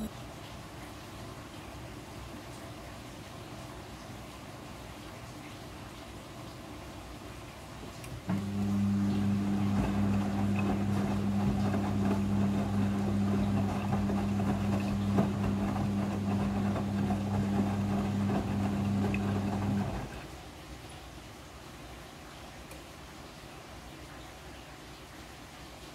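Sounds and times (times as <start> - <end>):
washing machine humming: 0.0 - 20.7.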